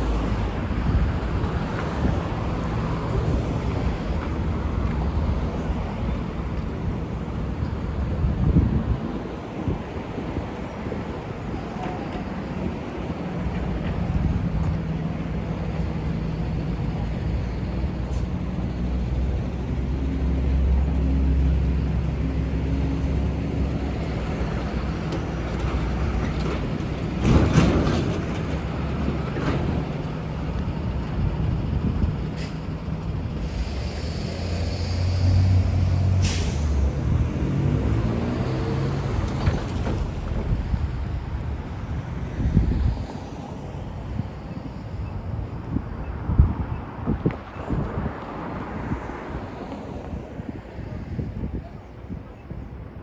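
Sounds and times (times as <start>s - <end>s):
bus engines passing: 0.0s - 53.0s
air brakes hissing: 32.4s - 32.8s, 33.4s - 37.2s.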